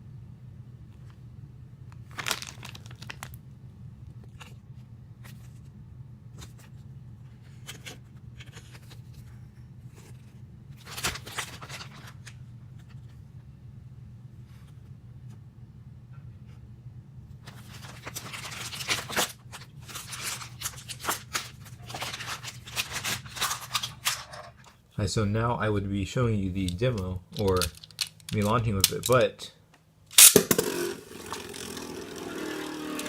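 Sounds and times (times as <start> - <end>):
steady low hum: 0.0 - 33.0
packaging tearing and crinkling: 2.0 - 3.4, 10.8 - 12.3, 17.5 - 24.3, 30.2 - 30.8.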